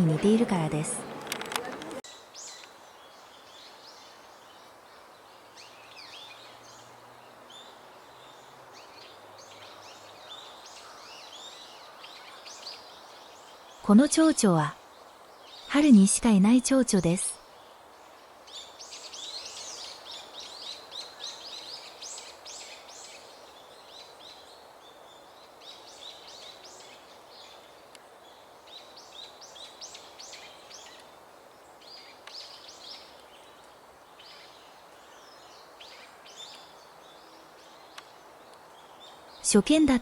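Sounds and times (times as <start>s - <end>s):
faint background hiss: 0.0s - 40.0s
small birds chirping: 0.0s - 40.0s.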